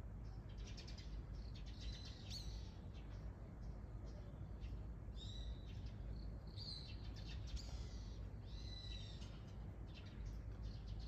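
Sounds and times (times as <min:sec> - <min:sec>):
wild birds calling: 0:05.2 - 0:11.0.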